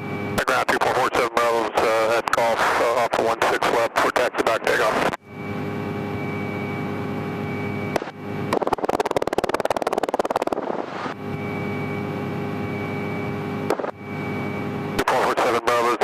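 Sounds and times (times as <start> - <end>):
rapid buzzing pulses: 8.0 - 11.2, 13.7 - 14.3.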